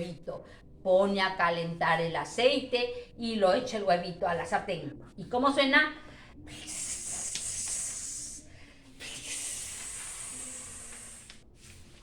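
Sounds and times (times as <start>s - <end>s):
woman making hissing sounds: 6.5s - 11.4s.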